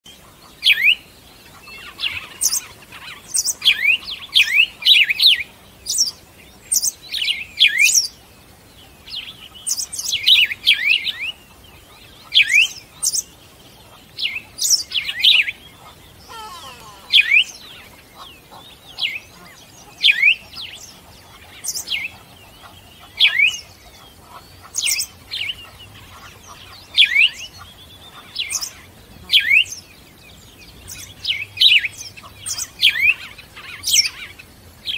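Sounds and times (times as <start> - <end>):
small bird chirping: 14.4 - 28.7.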